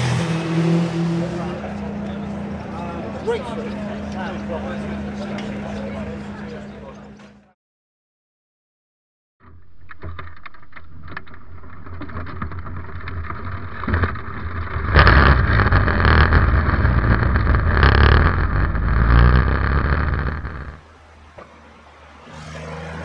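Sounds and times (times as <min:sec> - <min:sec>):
race car engine running: 0:11.9 - 0:20.8.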